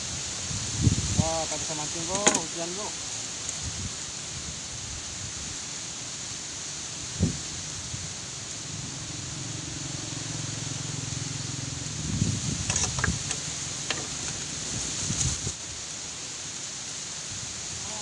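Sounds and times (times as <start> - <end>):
heavy rain: 0.0 - 18.0
wind hissing: 0.0 - 18.0
sharp knocks and clicks: 12.7 - 14.4.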